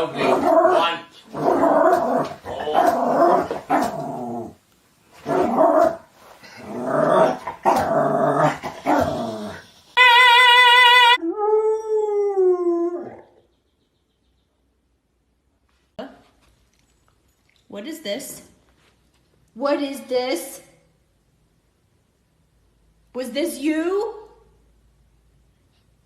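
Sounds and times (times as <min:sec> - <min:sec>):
dog howling: 0:10.0 - 0:13.3.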